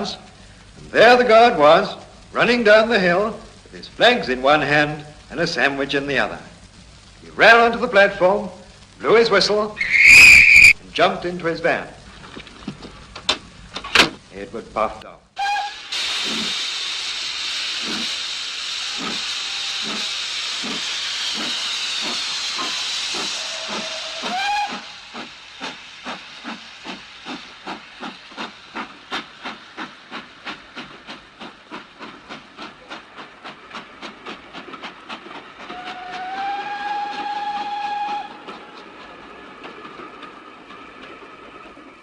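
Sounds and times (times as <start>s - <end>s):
steam hissing: 0.0s - 11.1s, 15.4s - 42.0s
steam whistle: 9.8s - 10.8s, 15.4s - 17.1s, 17.8s - 25.2s, 35.7s - 38.5s
steam locomotive chuffing: 15.4s - 42.0s.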